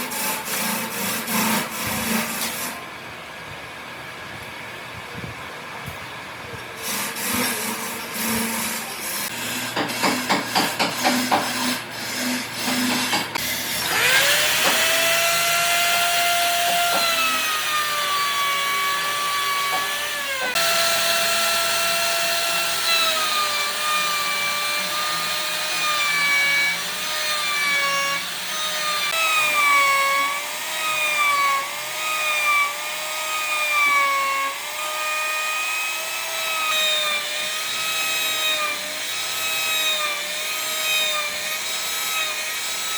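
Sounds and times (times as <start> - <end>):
power tool whine on wood: 11.0 - 42.9.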